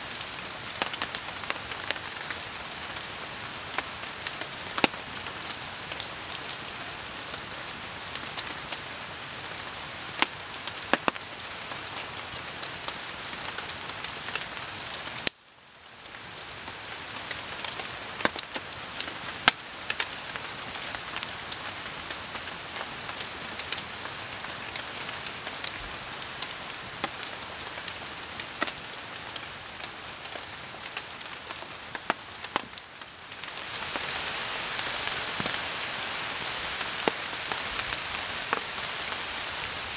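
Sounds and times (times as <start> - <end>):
campfire crackling and popping: 0.0 - 8.9, 10.1 - 21.6, 22.2 - 39.4
steady rain falling: 0.0 - 39.9.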